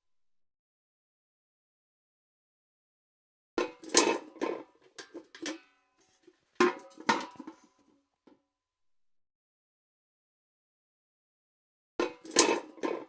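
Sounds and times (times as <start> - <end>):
steel bucket clanking: 12.0 - 13.0.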